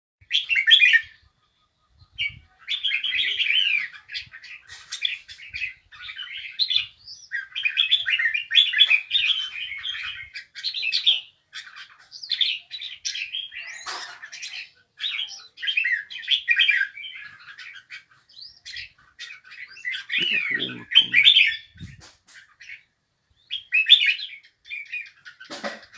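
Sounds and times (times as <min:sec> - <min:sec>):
songbird warbling: 0:19.8 - 0:22.0.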